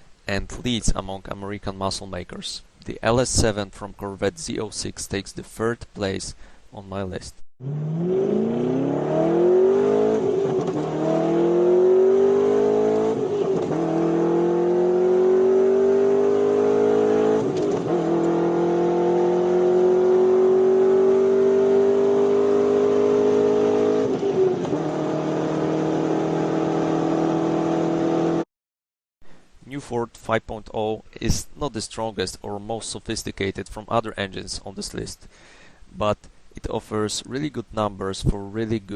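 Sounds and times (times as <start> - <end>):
car engine accelerating: 7.6 - 28.4.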